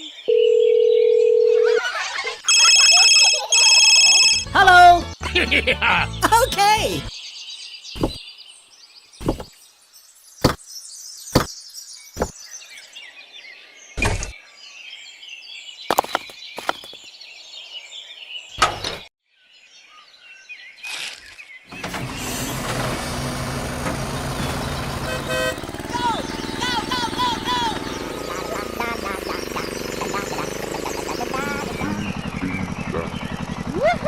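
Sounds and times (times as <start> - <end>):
birds chirping: 0.0 - 22.9, 23.8 - 34.0
sharp knocks: 8.0 - 8.2
machine running: 21.8 - 33.8.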